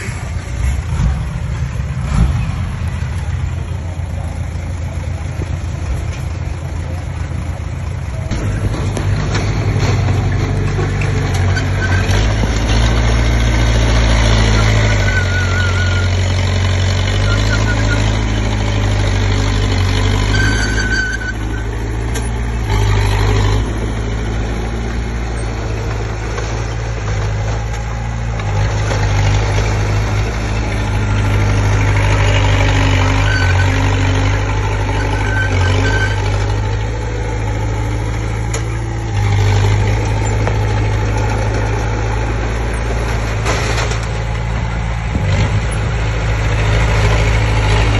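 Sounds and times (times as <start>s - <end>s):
bulldozer diesel engine running: 0.0s - 47.9s
short high-pitched squeaks: 14.4s - 16.4s, 20.2s - 21.8s, 32.2s - 36.4s.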